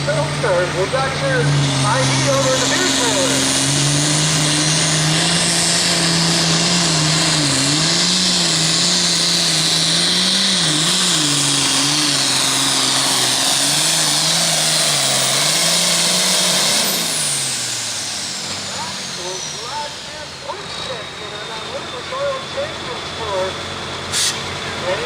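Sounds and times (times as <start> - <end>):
diesel tractor engine at full throttle: 0.0 - 25.0.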